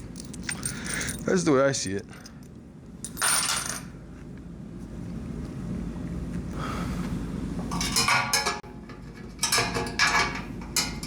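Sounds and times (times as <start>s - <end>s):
metal parts clinking and scraping: 0.0s - 3.9s.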